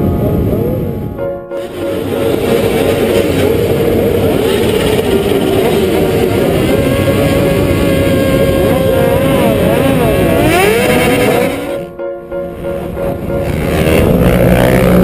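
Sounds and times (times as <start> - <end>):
motorcycle engines revving: 0.0 - 11.9, 12.5 - 15.0.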